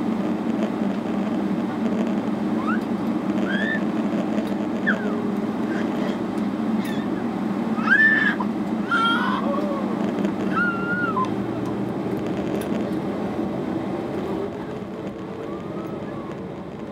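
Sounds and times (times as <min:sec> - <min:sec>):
airplane cabin drone: 0:00.0 - 0:16.9
brief high squeaks: 0:06.8 - 0:07.2.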